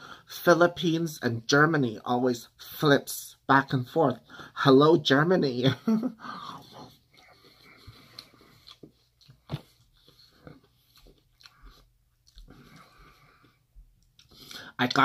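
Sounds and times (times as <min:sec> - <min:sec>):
person chewing food: 0:06.2 - 0:14.8.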